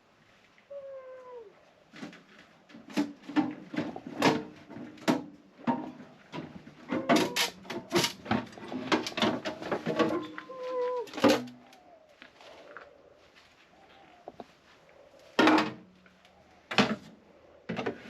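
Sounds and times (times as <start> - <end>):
knocks and clatters of handling: 1.9 - 11.8, 15.3 - 16.1, 16.7 - 18.0.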